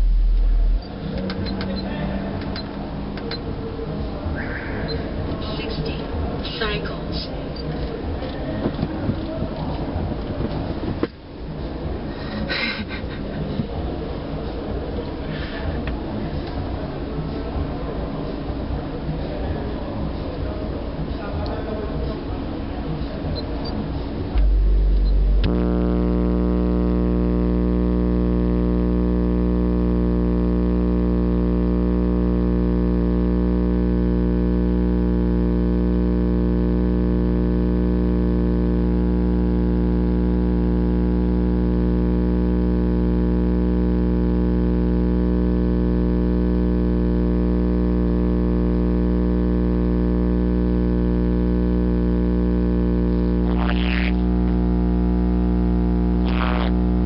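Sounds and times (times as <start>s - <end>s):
wavering higher sound: 0.0s - 1.1s
distorted low bass tone: 0.0s - 17.9s, 22.2s - 57.0s.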